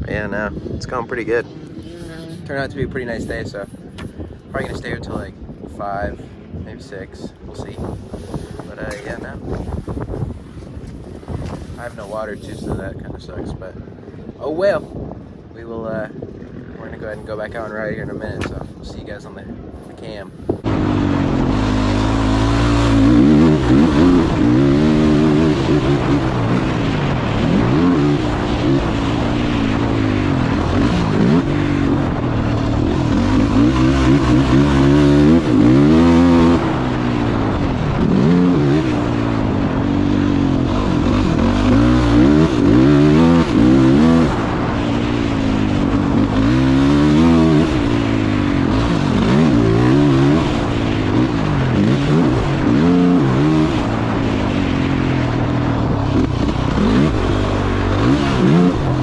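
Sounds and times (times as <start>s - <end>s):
dirt bike engine revving: 7.6s - 12.4s, 20.6s - 59.0s.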